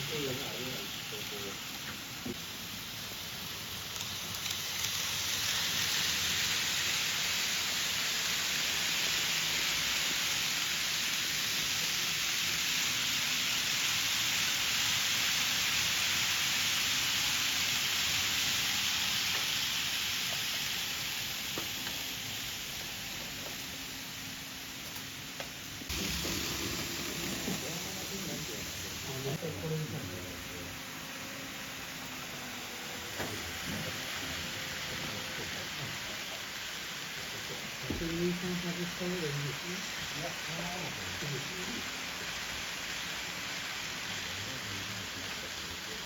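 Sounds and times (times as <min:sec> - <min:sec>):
model train wheels and motor hiss: 0:00.0 - 0:46.0.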